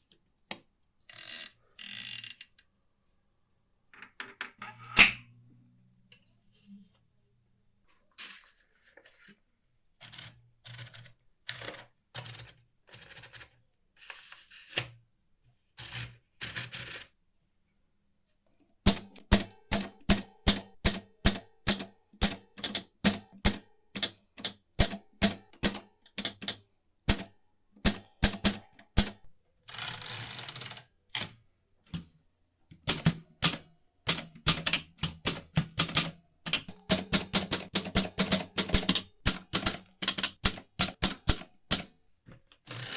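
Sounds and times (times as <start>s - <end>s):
manual typewriter typing: 18.9s - 30.8s, 32.8s - 41.9s.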